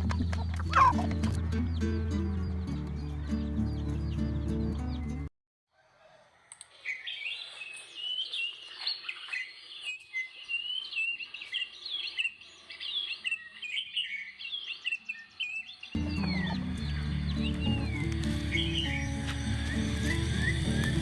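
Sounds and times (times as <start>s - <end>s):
background music: 0.0s - 5.3s, 16.0s - 21.0s
small birds chirping: 0.0s - 21.0s.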